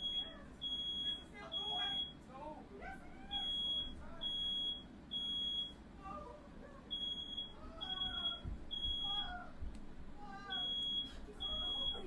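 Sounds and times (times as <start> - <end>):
smoke alarm beeping: 0.0 - 2.2, 3.3 - 5.8, 6.9 - 9.3, 10.5 - 12.0.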